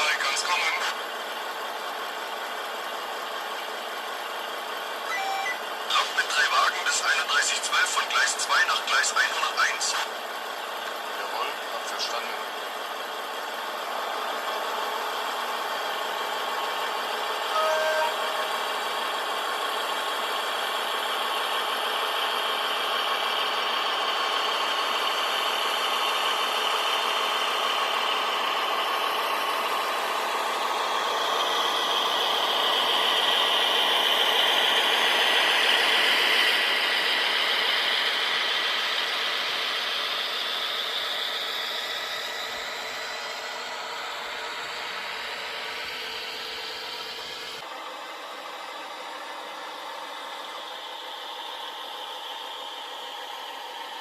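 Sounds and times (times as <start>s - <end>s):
model train motor and wheels humming: 0.0s - 54.0s
short tone: 5.0s - 5.6s, 17.5s - 18.6s.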